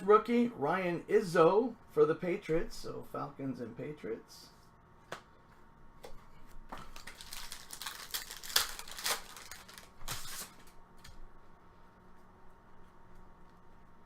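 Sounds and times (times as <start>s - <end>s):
faint handling of cards: 4.6s - 13.8s
card pack wrapper crinkling and tearing: 6.8s - 10.8s.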